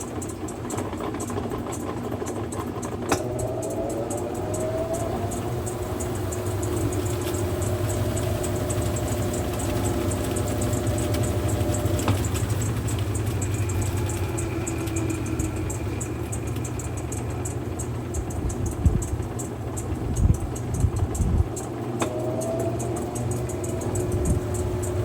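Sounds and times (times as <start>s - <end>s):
washing machine motor hum: 0.0s - 25.0s
fast light ticking: 2.5s - 22.1s.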